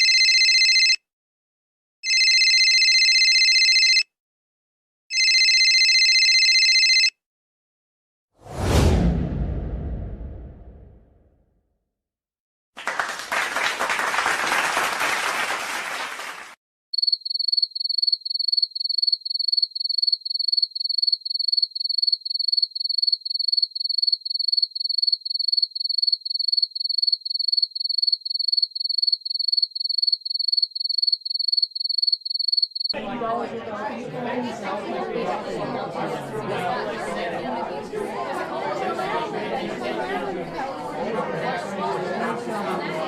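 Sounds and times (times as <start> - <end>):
applause-like hissing noise: 12.8 - 16.6
cricket chirping: 17.0 - 32.9.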